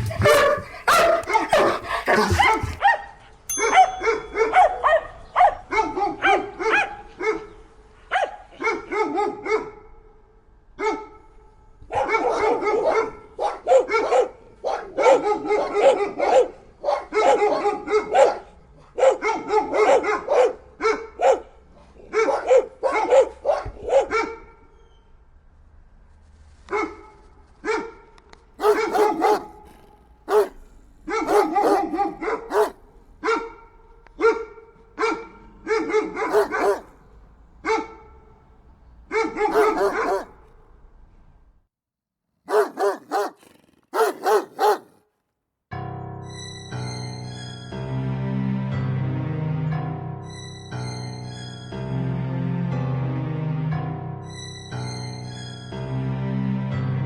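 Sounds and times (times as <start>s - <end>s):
dogs barking: 0.0s - 9.8s, 11.9s - 24.4s, 28.6s - 38.3s, 39.1s - 40.5s, 42.5s - 45.0s.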